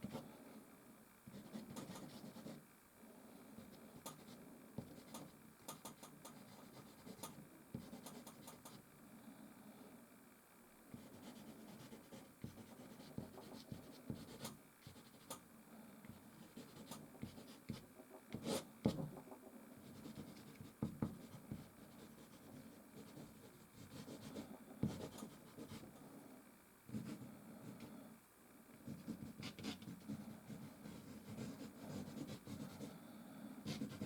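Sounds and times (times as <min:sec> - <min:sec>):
pastel stick scratching on canvas: 0:11.0 - 0:15.3, 0:16.4 - 0:25.9, 0:28.9 - 0:32.9, 0:33.7 - 0:34.0.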